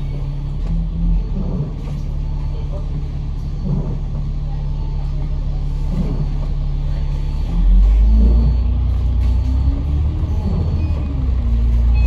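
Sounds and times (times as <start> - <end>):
bus diesel engine revving: 5.6 - 12.0.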